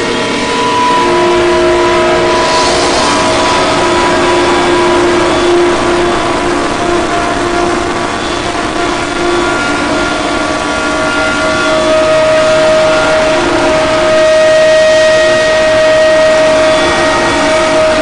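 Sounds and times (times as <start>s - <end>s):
harsh noise drone music: 0.0s - 18.0s.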